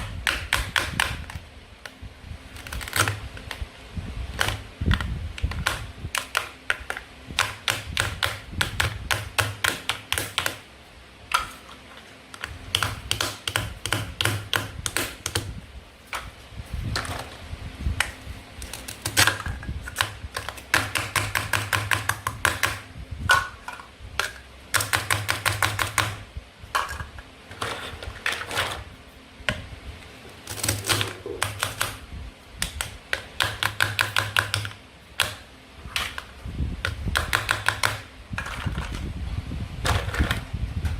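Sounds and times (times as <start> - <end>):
plastic toys tapping: 4.4 - 10.6, 12.4 - 15.5, 18.0 - 26.2, 32.6 - 35.4, 36.0 - 39.0.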